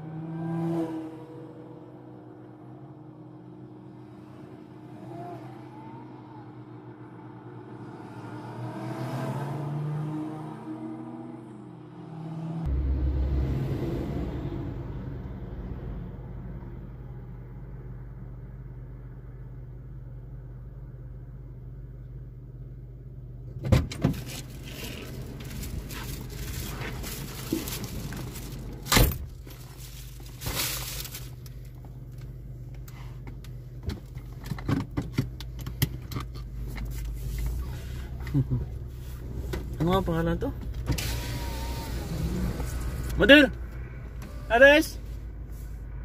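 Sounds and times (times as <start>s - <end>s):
car engine idling: 12.7s - 46.0s.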